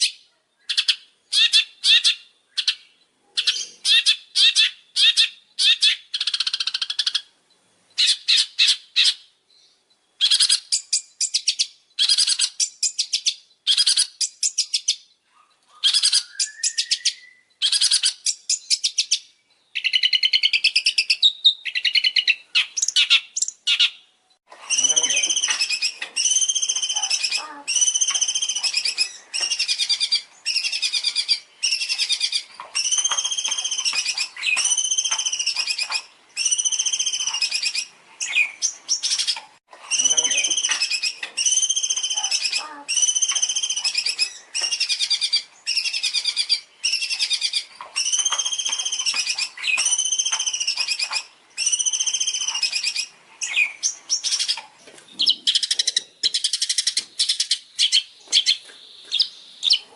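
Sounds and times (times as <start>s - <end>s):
songbird trilling: 0.0s - 7.3s, 8.0s - 24.0s, 24.6s - 59.9s
bird whistled phrases: 15.7s - 19.2s, 24.7s - 54.6s
scratchy bird chatter: 24.7s - 59.9s.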